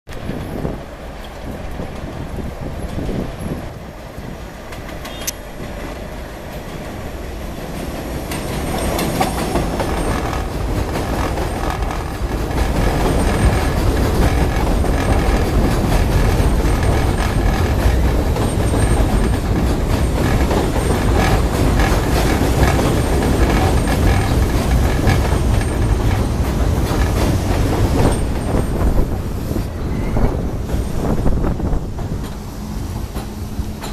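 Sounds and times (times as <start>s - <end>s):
subway train on steel rails: 0.1s - 33.9s.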